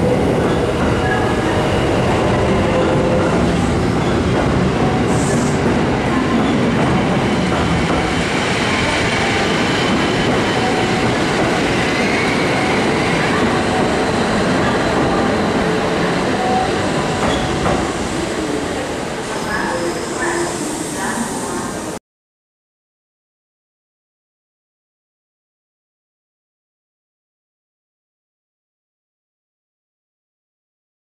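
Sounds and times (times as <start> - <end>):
train wheels rumbling: 0.0 - 21.8.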